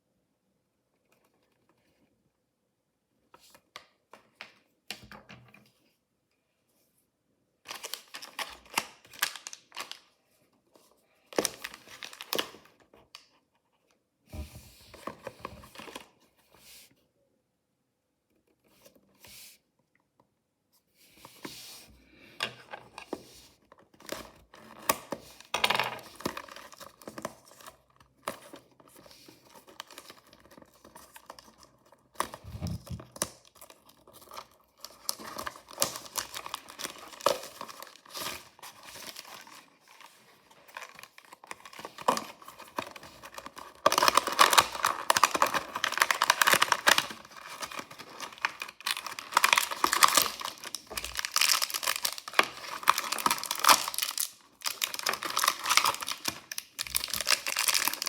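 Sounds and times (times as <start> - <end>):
packaging crinkling and tearing: 7.7 - 10.2, 11.3 - 13.3, 24.0 - 58.0.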